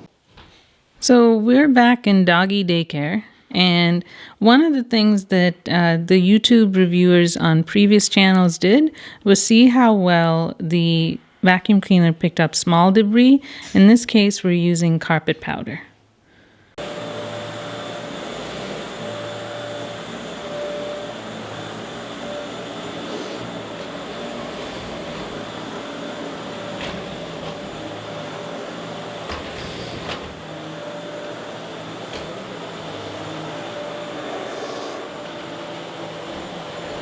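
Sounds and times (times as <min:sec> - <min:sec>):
vacuum cleaner whining drone: 0:16.8 - 0:37.0.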